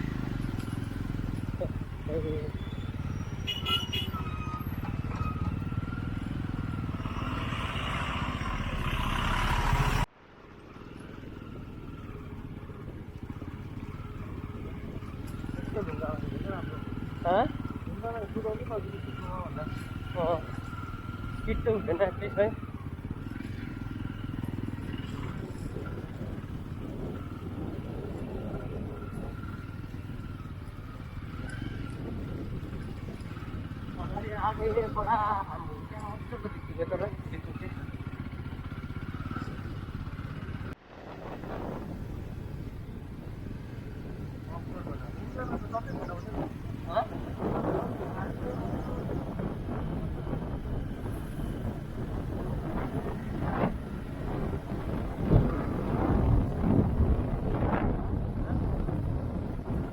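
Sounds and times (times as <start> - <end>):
motorcycle engine running: 0.0 - 59.9
rushing wind noise: 22.6 - 34.8, 35.4 - 59.9.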